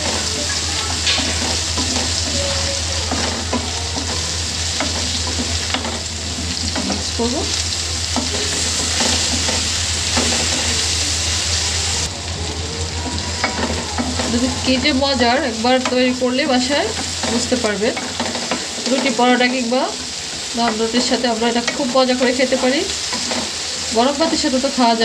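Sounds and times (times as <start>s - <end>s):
spatula tapping a pan: 0.0s - 7.1s, 8.0s - 10.8s, 15.6s - 24.6s
food sizzling in a frying pan: 0.0s - 25.0s
wooden spatula scraping a pan: 15.8s - 24.6s.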